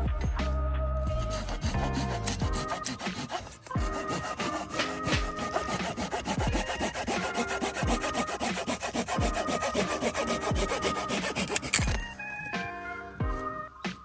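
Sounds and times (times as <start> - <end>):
background music with deep beat: 0.0 - 14.0
hand saw cutting wood: 1.2 - 12.2.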